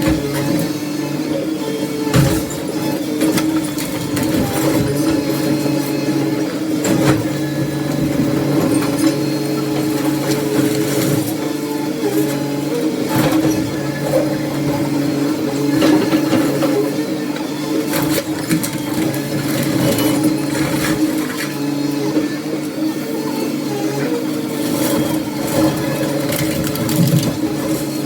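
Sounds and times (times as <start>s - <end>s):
demolition machinery engine hum: 0.0s - 28.0s
debris knocking and crashing: 2.1s - 5.6s, 24.7s - 28.0s.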